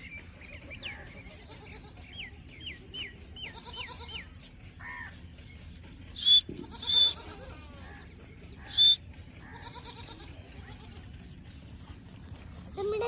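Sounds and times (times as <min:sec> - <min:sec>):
loud shrill animal calls: 0:06.2 - 0:07.2, 0:08.7 - 0:09.0
short high animal calls: 0:06.2 - 0:07.2, 0:08.7 - 0:09.0.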